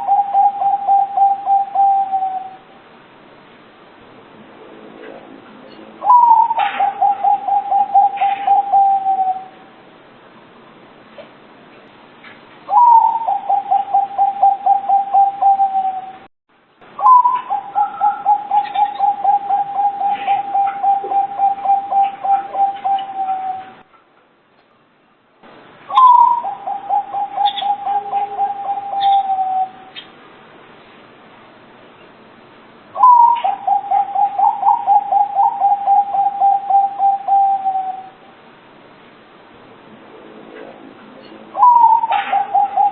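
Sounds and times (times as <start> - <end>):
dove cooing: 0.0 - 2.6, 6.0 - 9.7, 12.7 - 16.3, 17.0 - 23.8, 25.9 - 30.1, 33.0 - 38.2, 41.5 - 42.9.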